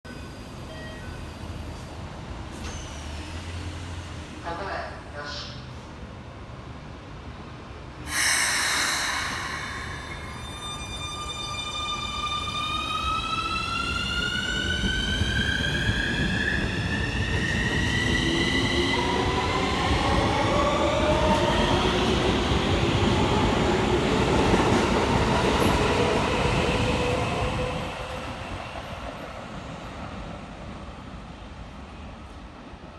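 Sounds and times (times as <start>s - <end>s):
lower rising tones: 8.1s - 15.6s.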